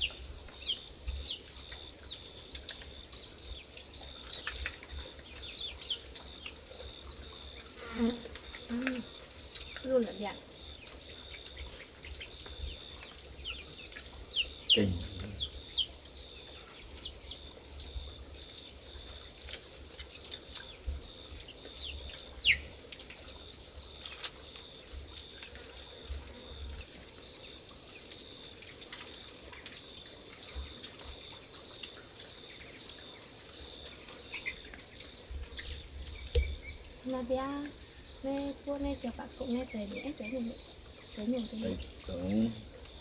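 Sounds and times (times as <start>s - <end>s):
insects droning: 0.0s - 43.0s
bird chirps: 8.5s - 18.1s, 20.1s - 22.7s.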